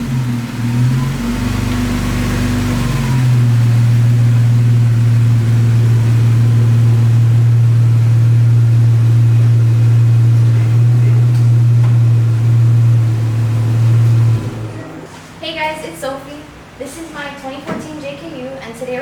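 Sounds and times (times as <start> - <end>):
vehicle engine running: 0.0 - 15.1.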